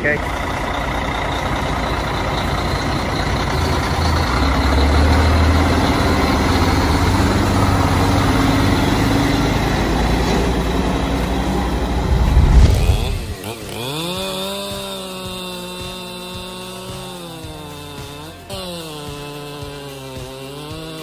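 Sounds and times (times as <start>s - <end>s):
high whine: 0.0s - 13.6s
heavy machine engine running: 0.0s - 14.1s.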